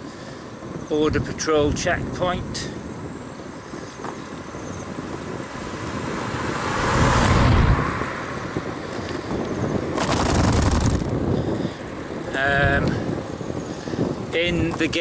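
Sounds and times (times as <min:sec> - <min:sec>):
road noise: 0:00.0 - 0:15.0
vehicle passing: 0:05.5 - 0:11.1.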